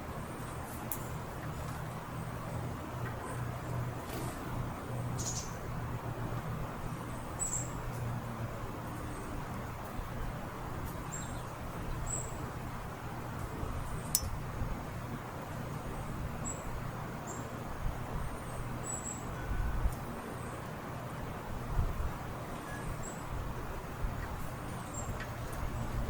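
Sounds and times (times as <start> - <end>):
small birds chirping: 4.8 - 5.8, 6.8 - 8.1, 10.8 - 12.6, 15.8 - 17.6, 18.2 - 19.5, 22.6 - 23.4, 24.2 - 26.0.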